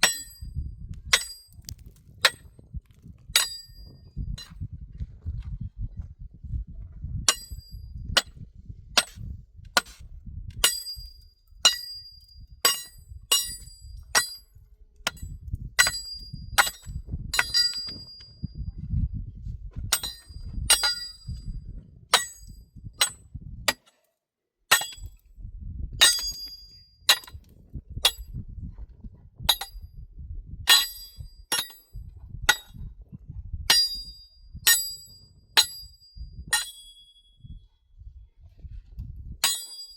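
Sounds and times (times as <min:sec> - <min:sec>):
hammer striking stone: 0:24.7 - 0:25.1, 0:26.0 - 0:27.3, 0:39.4 - 0:39.9.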